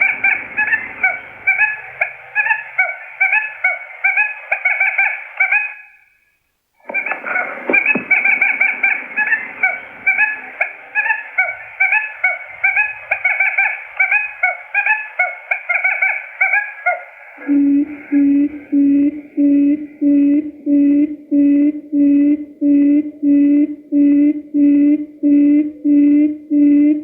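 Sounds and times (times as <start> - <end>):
rapid high chirping calls: 0.0 - 5.9
low hooting call: 0.0 - 6.2, 6.8 - 27.0.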